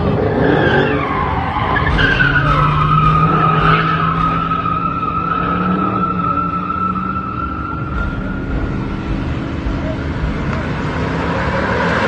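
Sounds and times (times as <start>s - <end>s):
car engine running hard: 0.0s - 12.0s
car tyres squealing: 0.0s - 12.0s.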